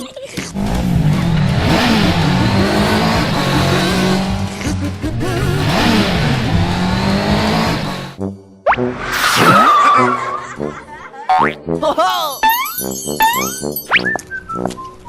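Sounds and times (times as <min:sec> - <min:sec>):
cartoon race car engines revving: 0:00.4 - 0:08.2.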